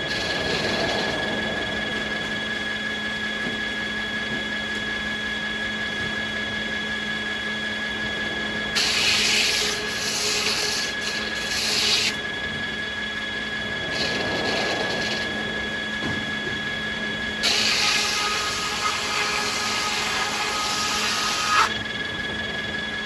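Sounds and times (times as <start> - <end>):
saw cutting through wood: 0.0 - 1.2, 8.7 - 12.2, 13.9 - 15.5, 17.4 - 21.8
sawmill machinery whine: 0.0 - 23.0.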